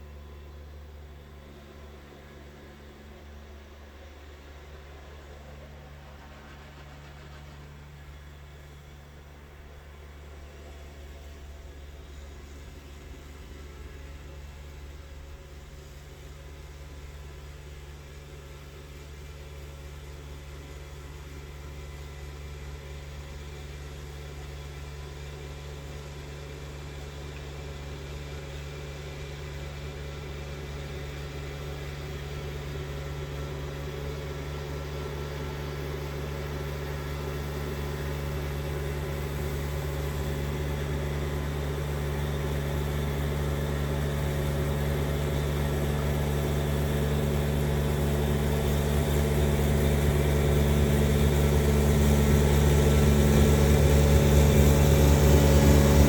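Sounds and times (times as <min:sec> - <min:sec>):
tractor engine running: 0:26.7 - 0:56.0.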